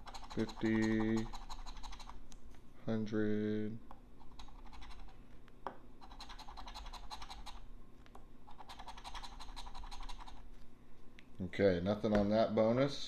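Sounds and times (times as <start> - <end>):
scraping lottery ticket: 0.0 - 2.2.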